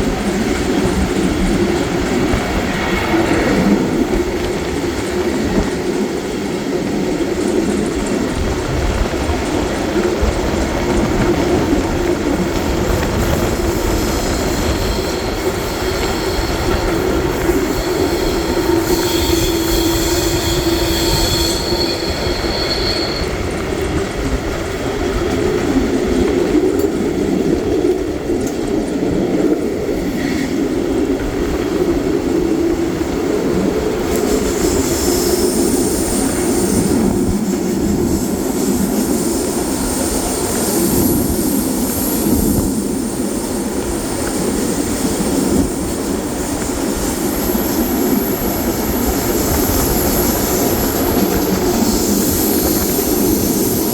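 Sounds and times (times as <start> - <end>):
train wheels rumbling: 0.0 - 53.9
high-pitched wheel squeal: 14.3 - 23.6.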